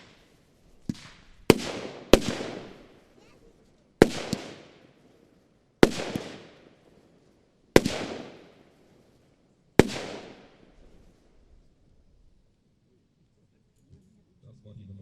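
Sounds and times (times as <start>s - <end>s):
firework battery bangs: 0.0s - 3.3s, 4.0s - 5.0s, 5.8s - 6.9s, 7.8s - 8.9s, 9.8s - 11.2s.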